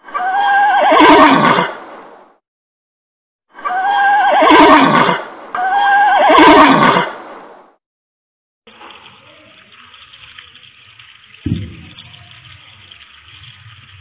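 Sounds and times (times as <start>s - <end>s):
horse whinnying: 0.2s - 1.8s, 3.6s - 7.2s.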